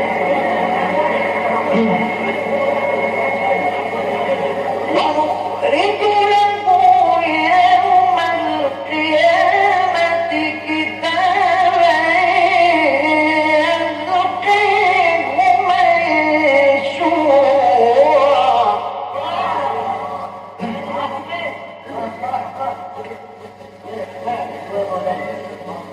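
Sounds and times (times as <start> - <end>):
low hum: 0.0 - 14.5
man reciting melodically: 4.9 - 22.9.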